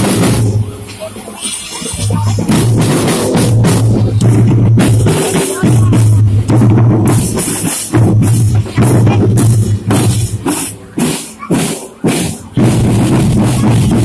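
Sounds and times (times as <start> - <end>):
loud music with booming bass: 0.0 - 10.3.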